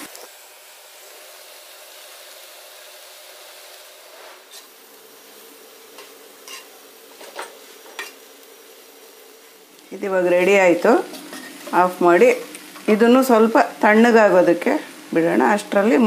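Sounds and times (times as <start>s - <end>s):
stuffing sizzling in a pan: 0.0s - 16.0s
metal ladle scraping a pan: 4.2s - 4.8s, 6.0s - 8.2s, 11.1s - 11.8s.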